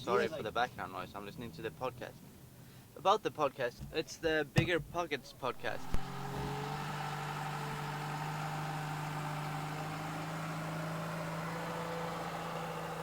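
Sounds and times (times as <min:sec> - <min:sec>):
vehicle engine running: 0:05.5 - 0:13.0.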